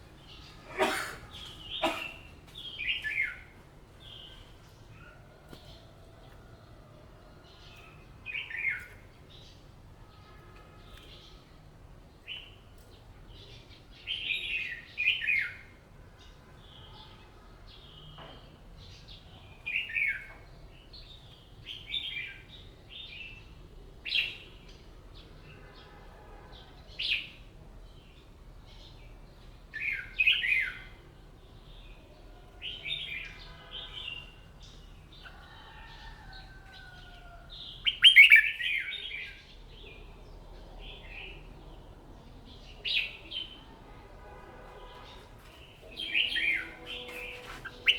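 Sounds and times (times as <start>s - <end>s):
bulbul singing: 45.7s - 47.9s.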